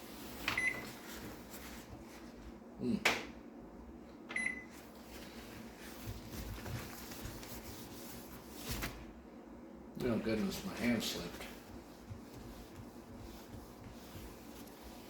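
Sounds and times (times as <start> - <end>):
microwave short beep: 0.6 - 0.9, 4.3 - 4.8
microwave keypad click: 4.3 - 4.6.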